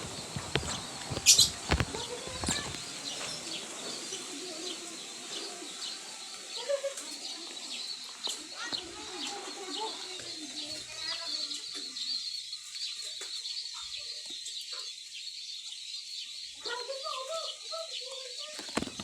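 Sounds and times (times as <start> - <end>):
high thin chirping: 0.0 - 4.0
chickens clucking: 0.0 - 10.8.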